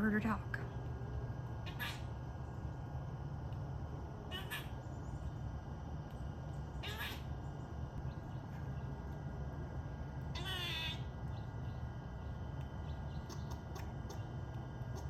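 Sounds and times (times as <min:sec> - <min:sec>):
woman talking: 0:00.0 - 0:00.8
squirrel harsh call: 0:01.6 - 0:02.2, 0:04.3 - 0:04.9, 0:06.7 - 0:07.4, 0:10.3 - 0:11.1.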